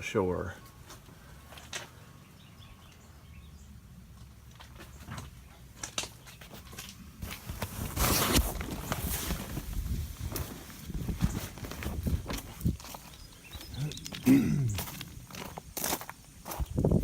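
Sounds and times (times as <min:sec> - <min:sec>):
footsteps on ground: 0:04.2 - 0:17.0
faint bird chirps: 0:12.9 - 0:15.0.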